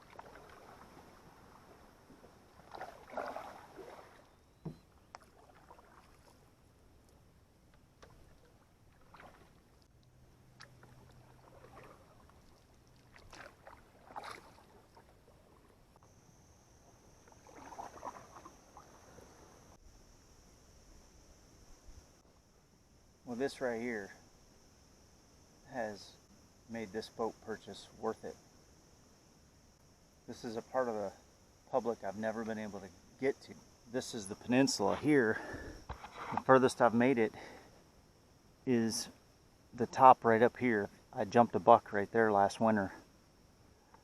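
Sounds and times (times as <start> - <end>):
canoe paddle strokes in water: 0.0 - 6.6, 7.8 - 15.9, 16.8 - 19.7, 34.8 - 36.6.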